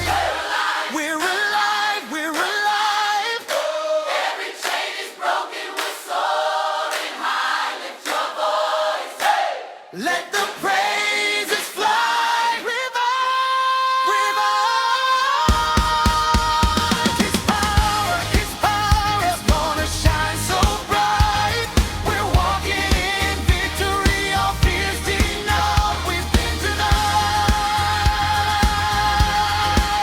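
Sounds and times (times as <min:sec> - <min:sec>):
drums and full band: 0:00.0 - 0:00.5, 0:15.5 - 0:30.0
choir singing: 0:00.0 - 0:30.0.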